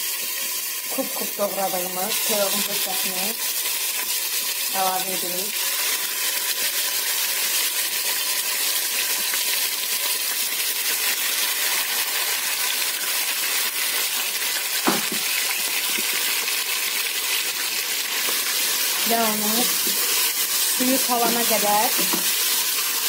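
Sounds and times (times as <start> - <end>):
chicken sizzling in hot oil: 0.0 - 23.0
knock: 14.8 - 15.3.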